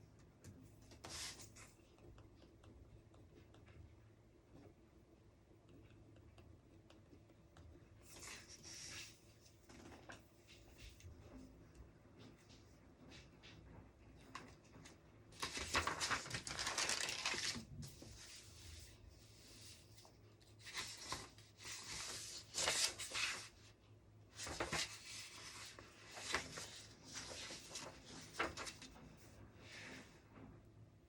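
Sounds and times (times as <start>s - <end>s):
paper rustling: 8.1s - 9.2s, 15.4s - 23.6s, 24.3s - 30.0s.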